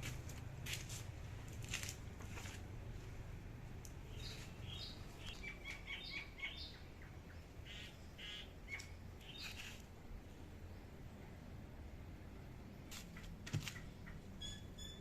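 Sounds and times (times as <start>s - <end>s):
small bird chirping: 4.0s - 9.8s, 12.8s - 15.0s.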